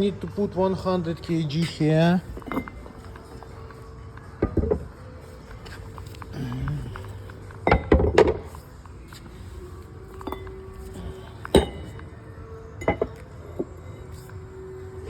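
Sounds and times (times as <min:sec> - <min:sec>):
metal weights clinking and knocking: 0:01.6 - 0:03.4, 0:11.5 - 0:12.0.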